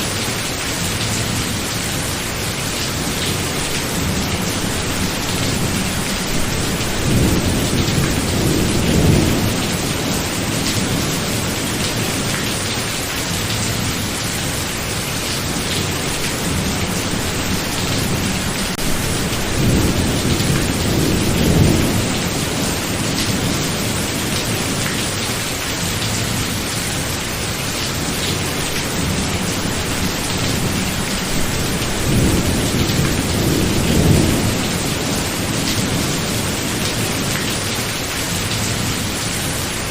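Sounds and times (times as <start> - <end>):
heavy rain: 0.0 - 39.9
thunder rumbling: 3.0 - 12.4, 15.4 - 24.9, 28.0 - 39.0.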